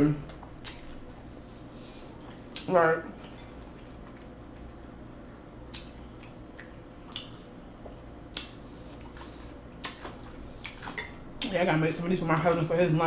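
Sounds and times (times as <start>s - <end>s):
person chewing: 0.3s - 1.4s, 5.6s - 12.0s
wet mouth clicks and smacks: 5.7s - 7.5s, 8.3s - 8.8s, 9.8s - 11.5s.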